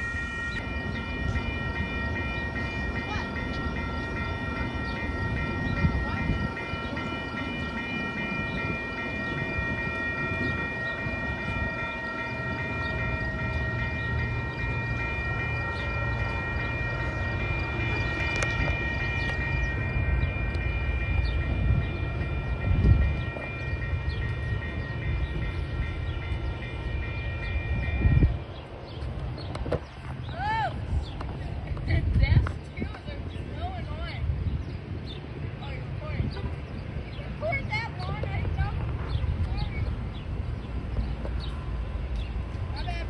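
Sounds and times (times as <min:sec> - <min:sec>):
high ringing tones: 0:00.0 - 0:28.9
train cars rumbling on rails: 0:00.0 - 0:43.0.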